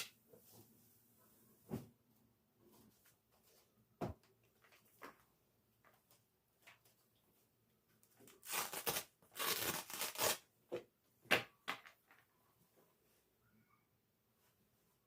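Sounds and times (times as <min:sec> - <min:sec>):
rustling or tearing: 0:08.3 - 0:10.4.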